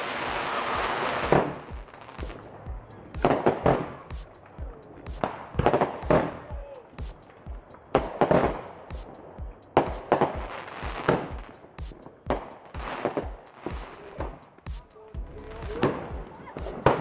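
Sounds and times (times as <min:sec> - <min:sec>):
fireworks bangs and crackle: 0:00.0 - 0:14.4, 0:15.4 - 0:17.0
music with a steady beat: 0:00.1 - 0:17.0.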